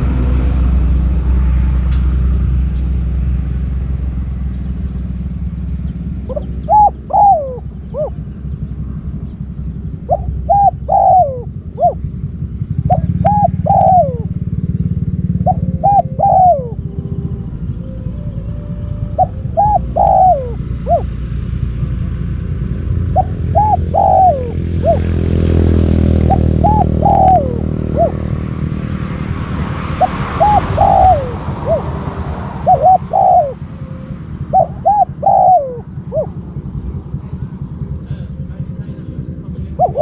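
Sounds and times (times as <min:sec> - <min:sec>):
steady low rumble: 0:00.0 - 0:40.0
dove cooing: 0:06.2 - 0:21.5, 0:22.8 - 0:29.2, 0:29.8 - 0:40.0.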